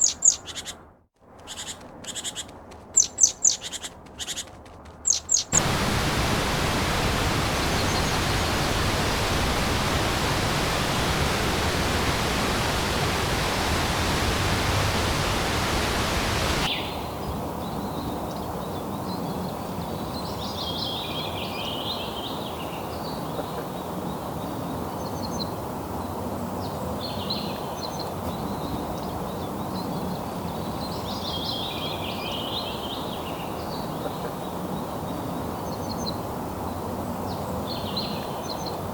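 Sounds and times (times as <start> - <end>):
high chirping animal calls: 0.0 - 0.8, 1.4 - 4.5, 5.1 - 5.8
falling water rushing: 5.6 - 16.7.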